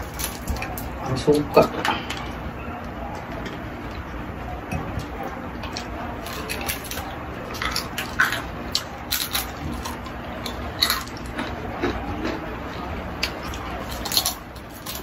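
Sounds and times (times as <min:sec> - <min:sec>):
crispy chicken skin crunching: 0:00.0 - 0:01.4, 0:05.6 - 0:12.4, 0:13.2 - 0:15.0.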